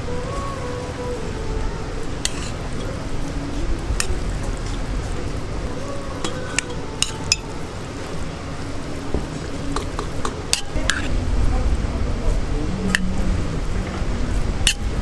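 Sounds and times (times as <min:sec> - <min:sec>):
frying sizzle: 0:00.0 - 0:15.0
utensils and dishes clinking: 0:02.0 - 0:11.2, 0:14.6 - 0:15.0.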